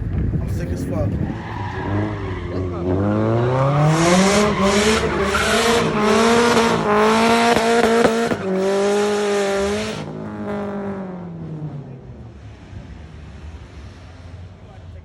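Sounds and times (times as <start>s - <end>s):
car engine revving high: 0.6s - 14.7s
tyres squealing: 1.1s - 9.2s.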